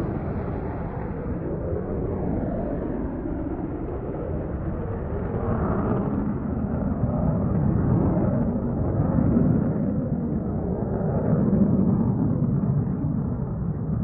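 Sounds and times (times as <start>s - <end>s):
jet engine and airflow rush: 0.0s - 14.0s.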